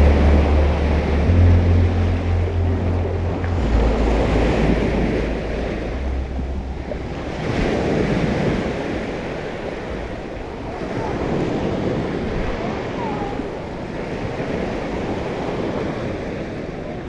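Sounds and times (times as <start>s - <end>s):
low steady hum: 0.0s - 10.8s
small waves washing on beach: 0.0s - 17.0s
wind buffeting microphone: 0.0s - 17.0s.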